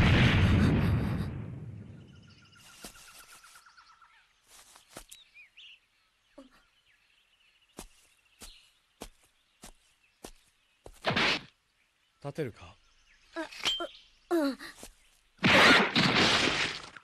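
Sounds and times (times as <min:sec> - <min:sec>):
rumble: 0:00.0 - 0:02.7
birds trilling and chirping: 0:01.8 - 0:15.4.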